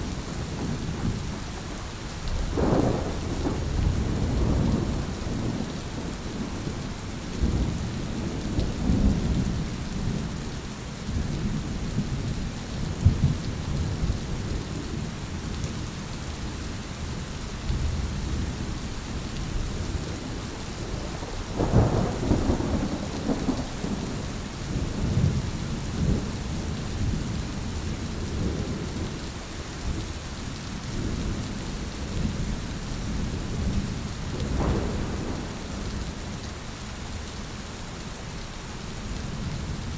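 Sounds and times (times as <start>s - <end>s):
heavy rain: 0.0s - 39.9s
thunder rumbling: 2.4s - 10.4s, 19.4s - 29.2s, 31.0s - 36.6s.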